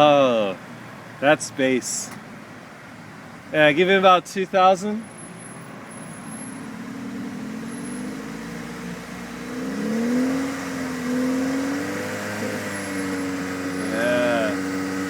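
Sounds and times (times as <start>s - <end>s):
car engine revving: 5.1s - 15.0s.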